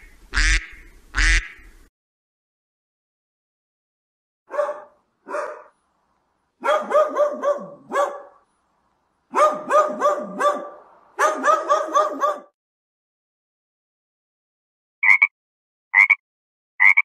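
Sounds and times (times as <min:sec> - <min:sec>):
dog barking: 0:04.5 - 0:05.8, 0:06.6 - 0:08.4, 0:09.3 - 0:12.6.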